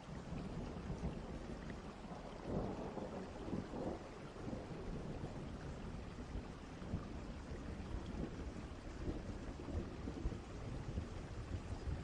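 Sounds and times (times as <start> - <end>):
far-off thunder rumbling: 0.0 - 12.0
steady rain: 0.0 - 12.0.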